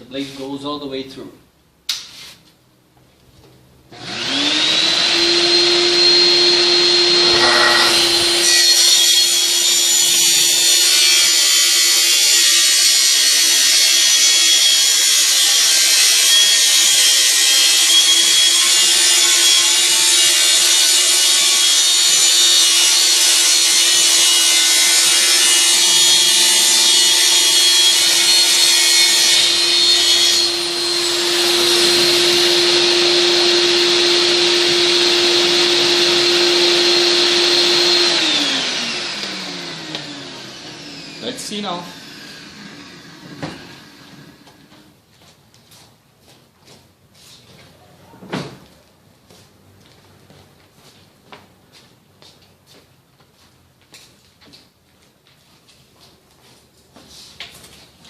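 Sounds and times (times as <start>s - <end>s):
saw cutting through board: 4.0s - 44.5s
circular saw motor whine: 5.5s - 10.0s.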